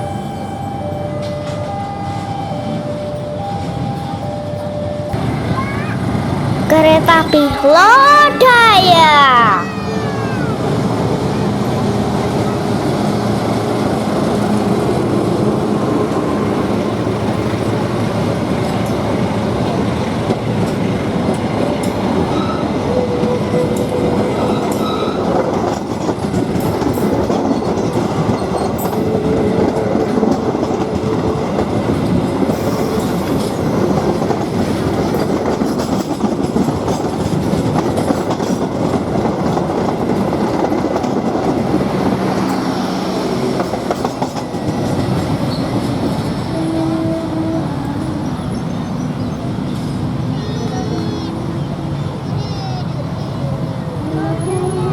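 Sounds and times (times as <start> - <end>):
train wheels clattering on rails: 10.6 - 46.6.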